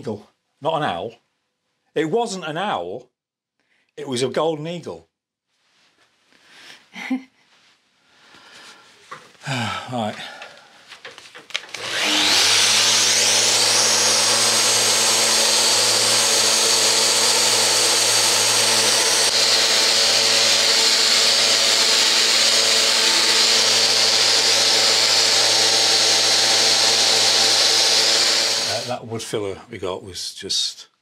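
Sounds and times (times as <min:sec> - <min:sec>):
electric power sander: 0:11.6 - 0:29.0.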